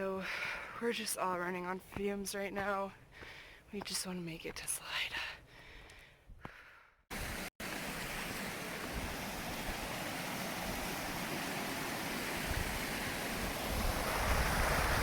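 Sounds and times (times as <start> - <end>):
wind on microphone: 12.3 - 15.0.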